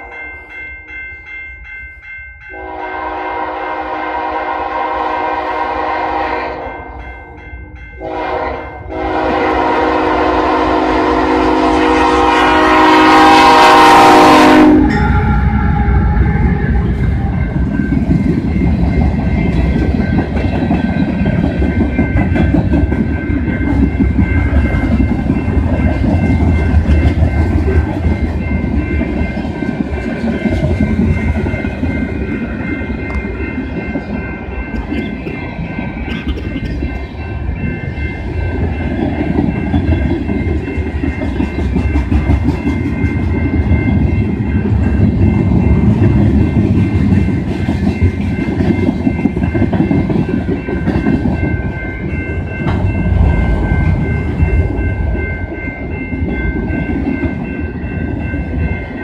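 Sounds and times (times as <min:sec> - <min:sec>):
level crossing warning alarm: 0:02.4 - 0:34.6
train horn blasts: 0:02.5 - 0:07.0, 0:08.0 - 0:16.9
train wheels rumbling on rail: 0:02.5 - 0:59.0.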